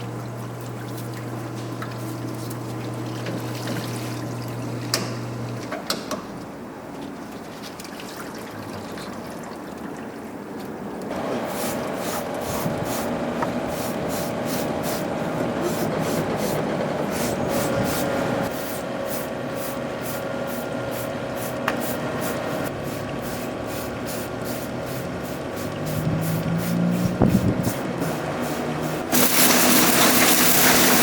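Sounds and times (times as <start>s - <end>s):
machine tool working metal: 11.1s - 31.0s.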